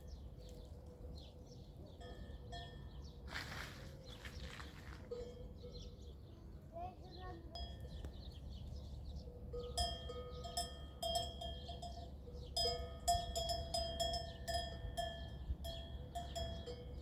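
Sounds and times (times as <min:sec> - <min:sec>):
livestock bell clanking: 0:01.9 - 0:03.1, 0:05.1 - 0:06.1, 0:07.5 - 0:08.0, 0:09.4 - 0:17.0.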